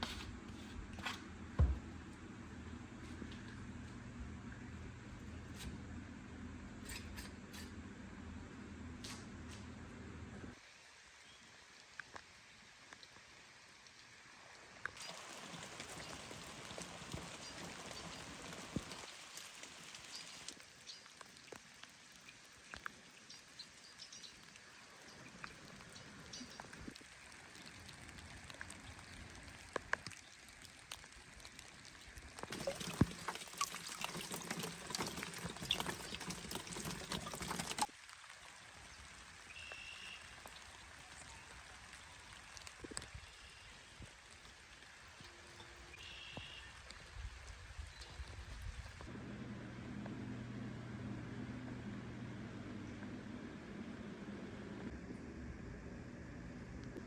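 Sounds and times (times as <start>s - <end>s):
rain falling and dripping: 10.5s - 49.2s.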